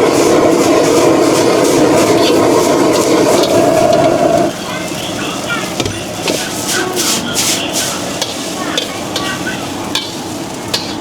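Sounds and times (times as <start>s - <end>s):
food frying sizzling: 0.0s - 11.0s
faint background chatter: 4.5s - 11.0s.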